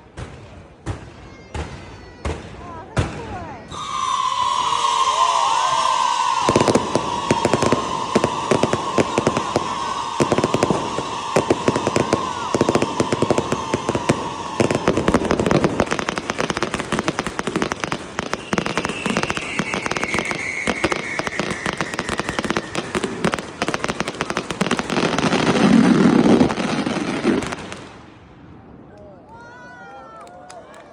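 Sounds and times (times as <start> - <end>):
fireworks bangs and pops: 0.0 - 28.2
falling firework whistle: 3.4 - 27.9
firework whistle: 3.4 - 27.9.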